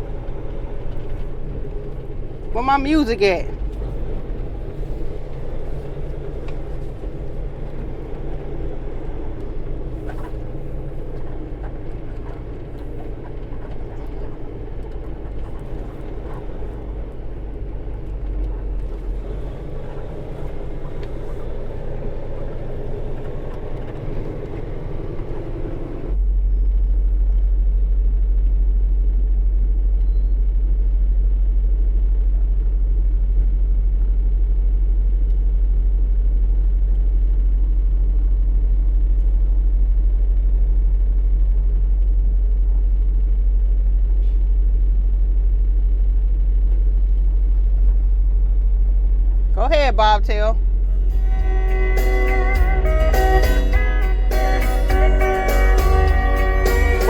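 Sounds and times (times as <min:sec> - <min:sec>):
truck engine and road noise: 0:00.0 - 0:57.0.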